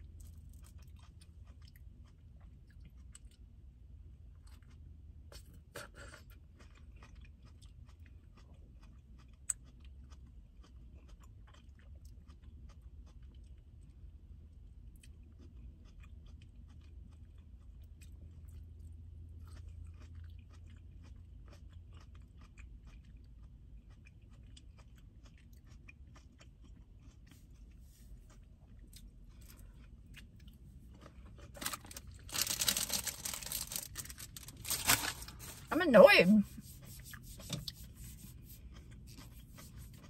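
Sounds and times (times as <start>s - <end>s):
chewing and crunching grapes: 0.0s - 40.0s
foil wrapper crinkling: 31.5s - 35.7s.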